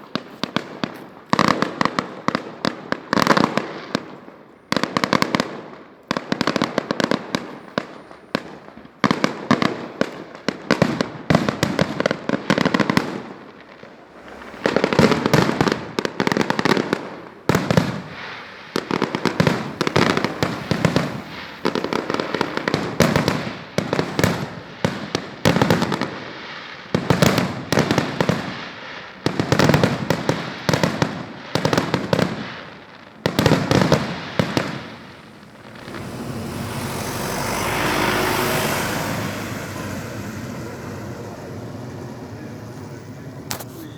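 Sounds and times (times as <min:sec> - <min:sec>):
firework bangs and crackling: 0:00.0 - 0:43.9.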